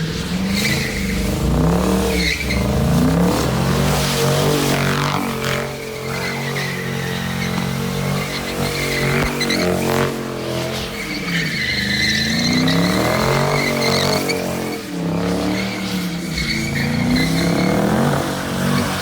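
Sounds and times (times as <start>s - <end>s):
car engine revving: 0.0s - 19.0s
tyres squealing: 4.1s - 19.0s.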